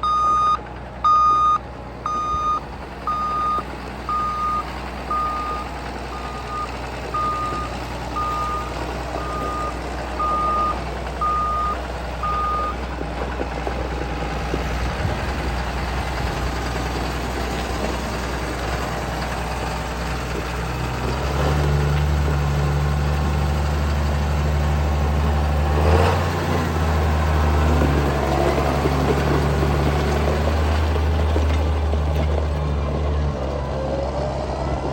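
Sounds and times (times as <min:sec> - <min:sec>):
reversing alarm beeping: 0:00.0 - 0:12.8
tractor diesel engine running: 0:00.0 - 0:34.9.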